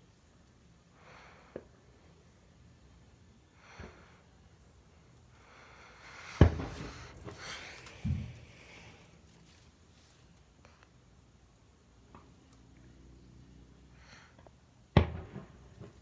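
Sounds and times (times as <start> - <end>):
fireworks crackling: 5.8 - 10.3
fireworks bangs: 6.0 - 8.8.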